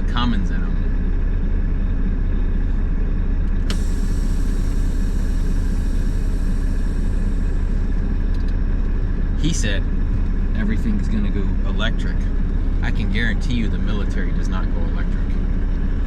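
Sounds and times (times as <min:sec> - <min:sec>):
truck engine and road noise: 0:00.0 - 0:16.0
sharp click: 0:08.3 - 0:08.6.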